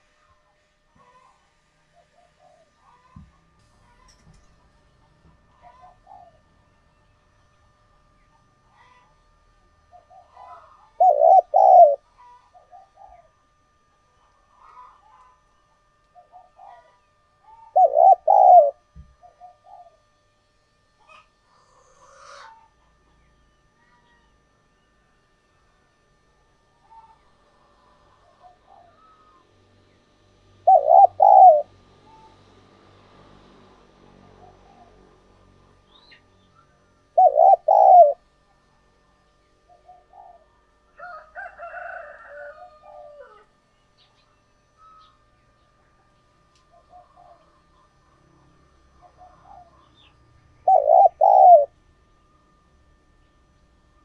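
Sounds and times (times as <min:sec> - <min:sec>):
dove cooing: 0:01.0 - 0:03.3, 0:05.6 - 0:06.7, 0:09.8 - 0:13.6, 0:16.2 - 0:20.2, 0:21.0 - 0:23.0, 0:26.8 - 0:29.5, 0:30.4 - 0:32.4, 0:36.8 - 0:38.3, 0:39.6 - 0:43.5, 0:46.7 - 0:51.8.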